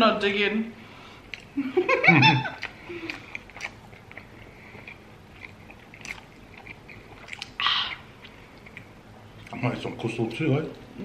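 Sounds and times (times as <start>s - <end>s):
chewing crispy fried chicken: 2.3s - 11.0s.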